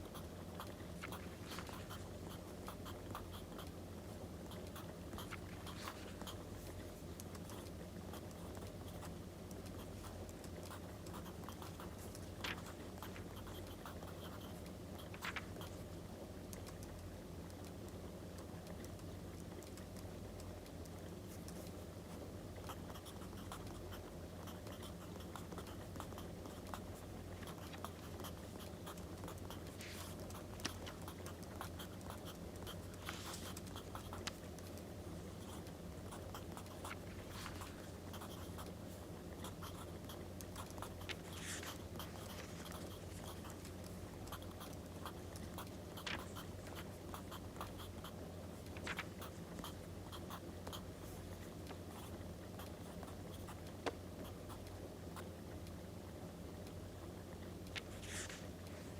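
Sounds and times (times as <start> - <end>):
paper rustle: 46.0 - 46.3, 48.8 - 49.1, 57.8 - 58.4.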